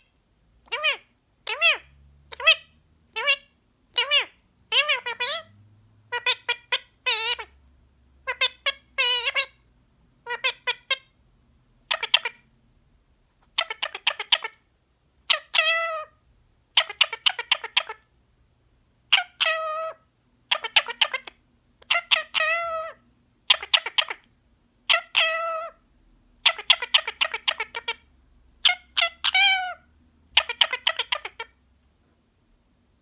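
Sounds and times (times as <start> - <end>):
parrot talking: 0.6 - 5.5, 6.1 - 7.6, 8.2 - 9.6, 10.2 - 11.2, 11.8 - 12.4, 13.5 - 14.6, 15.3 - 16.2, 16.8 - 18.1, 19.1 - 24.3, 24.9 - 25.8, 26.4 - 31.6.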